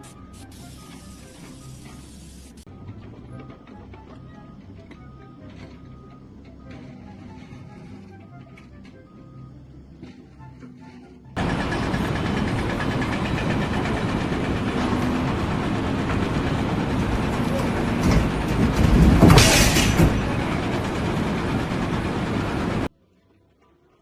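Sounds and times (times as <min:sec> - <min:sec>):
rattling machinery noise: 0:11.4 - 0:22.9.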